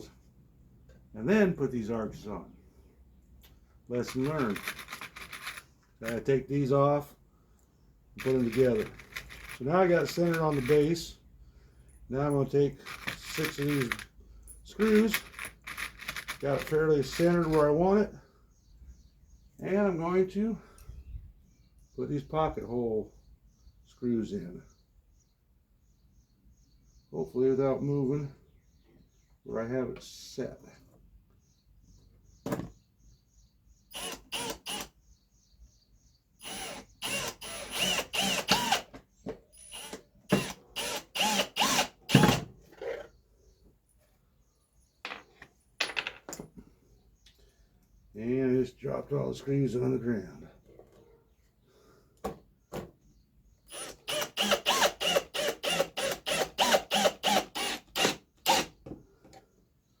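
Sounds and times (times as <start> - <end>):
sharp clicks: 3.4 - 6.3, 12.8 - 14.1, 14.8 - 17.6
power drill driving screws: 8.2 - 10.9, 12.9 - 14.1, 33.9 - 34.9, 36.4 - 38.9, 39.6 - 42.4, 53.7 - 58.8.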